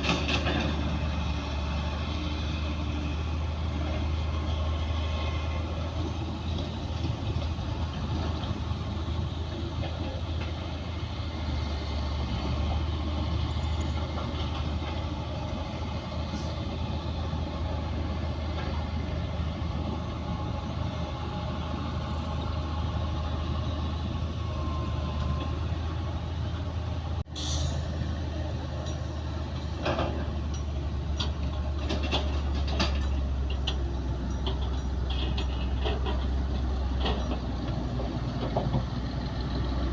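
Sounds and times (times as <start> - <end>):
metal clanks from tracks: 0.0 - 1.6, 6.1 - 10.9, 27.3 - 39.9
bulldozer diesel engine droning: 0.0 - 39.9.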